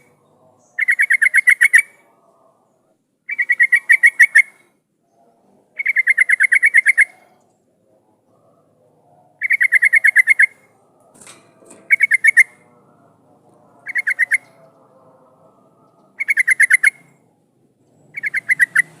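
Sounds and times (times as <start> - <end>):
bird chattering call: 9.4 - 10.6, 11.9 - 12.6, 13.8 - 14.6, 16.2 - 17.1, 18.1 - 19.0.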